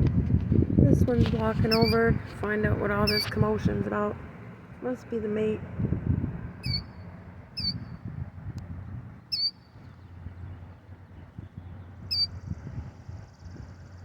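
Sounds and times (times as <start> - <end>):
low rumble: 0.0 - 14.0
bird calls and trill: 1.6 - 2.3, 2.9 - 3.6, 6.6 - 8.1, 9.2 - 14.0.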